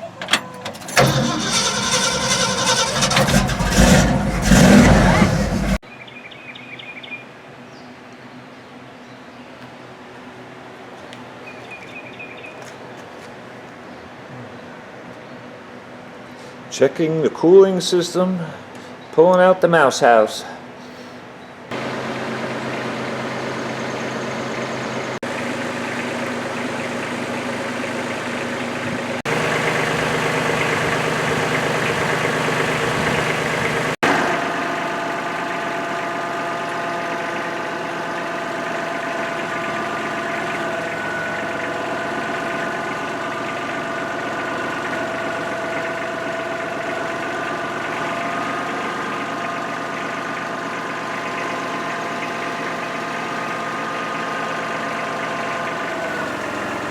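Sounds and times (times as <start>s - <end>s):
engine running: 0.0s - 5.8s, 21.7s - 56.9s
steady whine: 0.3s - 5.8s.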